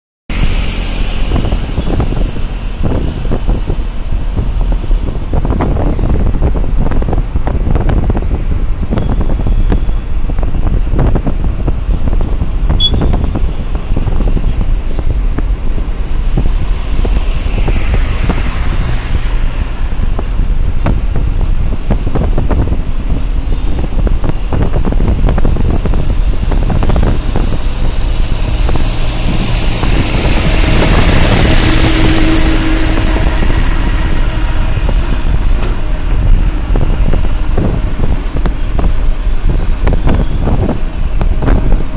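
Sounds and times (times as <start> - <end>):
road traffic rumbling: 0.3 - 41.9
wind buffeting microphone: 0.3 - 41.9
short high beep: 12.8 - 13.2.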